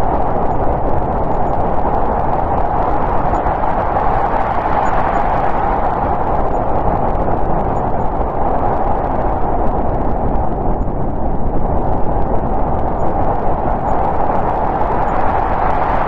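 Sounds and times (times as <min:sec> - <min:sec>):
snowstorm wind rushing: 0:00.0 - 0:16.0.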